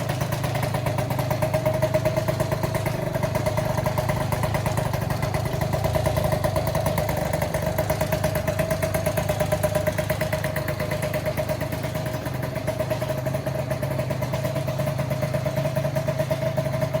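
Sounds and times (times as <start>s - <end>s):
scooter engine idling: 0.0s - 17.0s.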